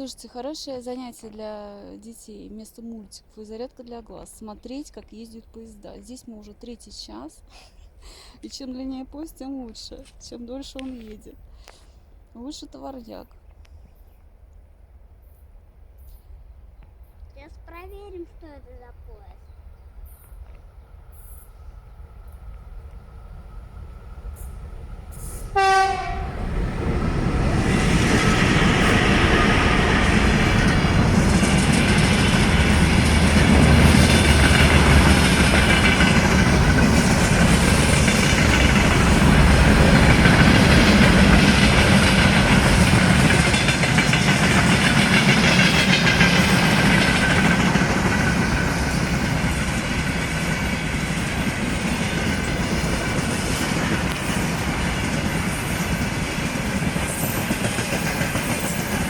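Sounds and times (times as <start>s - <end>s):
freight train rumbling on rails: 0.0s - 59.0s
train horn blast: 24.4s - 31.1s.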